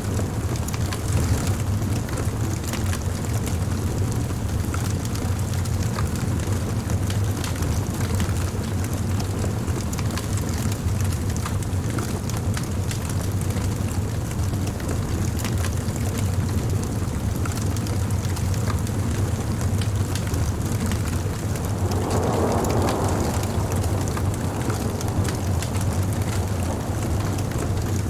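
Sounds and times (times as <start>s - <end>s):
campfire crackling: 0.4s - 28.0s.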